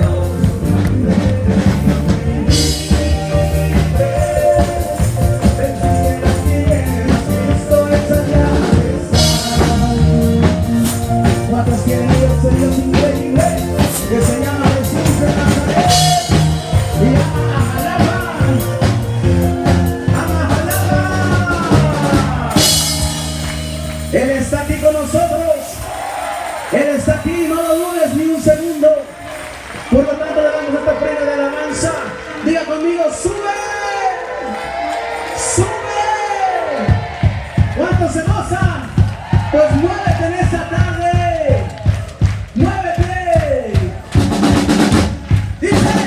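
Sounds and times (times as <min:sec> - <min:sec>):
drum kit beat: 0:00.0 - 0:28.9, 0:36.8 - 0:46.0
live band music: 0:00.0 - 0:30.1, 0:34.3 - 0:46.0.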